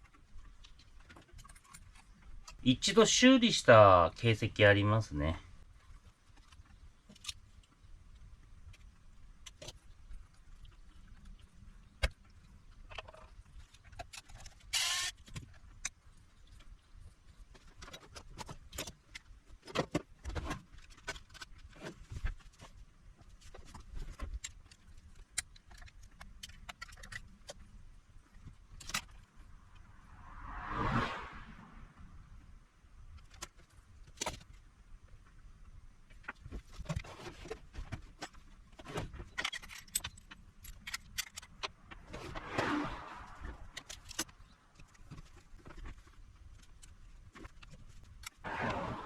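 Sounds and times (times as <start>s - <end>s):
small tools clicking and clattering: 12.0s - 16.0s, 23.4s - 29.3s, 36.3s - 42.0s
scraping sound: 29.9s - 32.0s, 41.9s - 43.9s, 48.5s - 49.0s.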